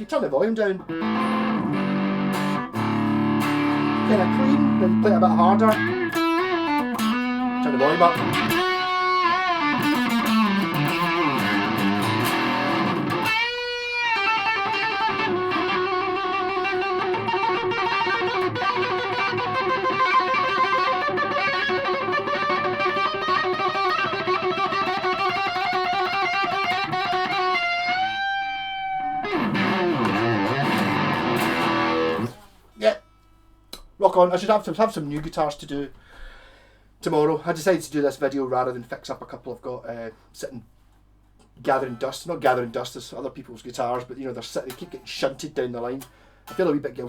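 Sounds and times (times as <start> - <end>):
fuzz electric guitar lead: 0.8 - 32.4.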